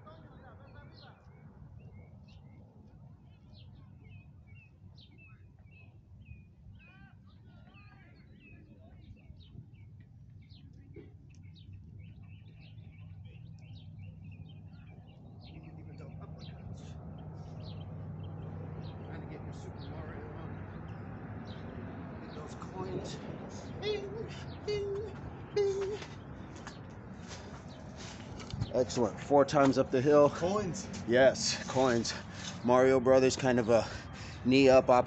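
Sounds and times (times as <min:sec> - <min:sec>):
small birds twittering: 0:00.9 - 0:35.0
low outdoor rumble: 0:07.5 - 0:34.4.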